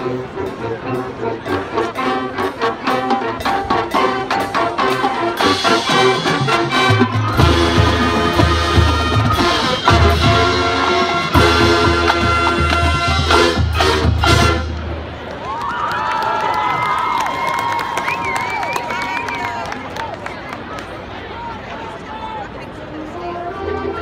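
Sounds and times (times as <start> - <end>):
brass: 0.0 - 15.1, 23.0 - 24.0.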